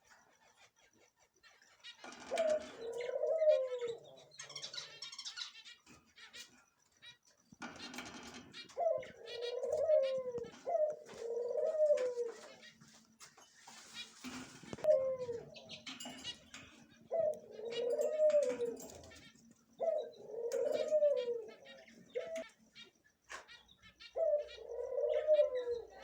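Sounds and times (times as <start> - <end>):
birds low curving calls: 0.0 - 26.0.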